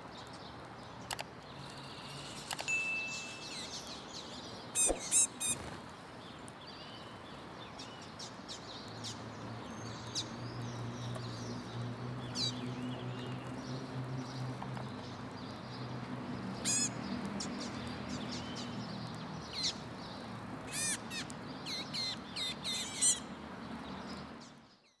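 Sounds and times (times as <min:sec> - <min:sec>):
bird chirping: 0:00.2 - 0:05.8.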